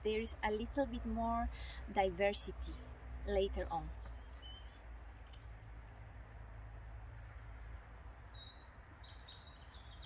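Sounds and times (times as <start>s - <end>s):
faint high bird chirps: 2.6s - 4.8s, 7.9s - 10.0s.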